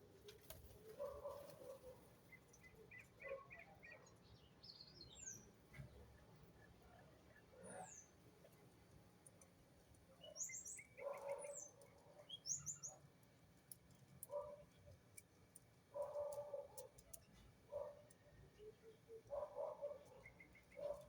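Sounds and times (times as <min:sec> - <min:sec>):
birds chirping: 0:10.2 - 0:13.0.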